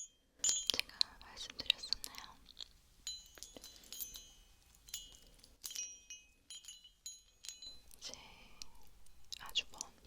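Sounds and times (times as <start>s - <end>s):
small bell ringing: 0.0s - 0.9s, 3.0s - 8.0s.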